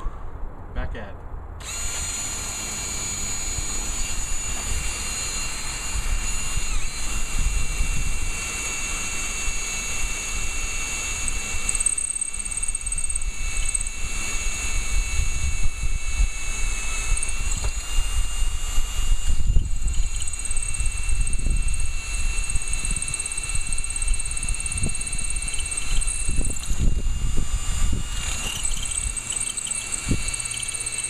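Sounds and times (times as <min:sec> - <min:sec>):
wind buffeting microphone: 0:03.6 - 0:08.6, 0:13.2 - 0:29.2.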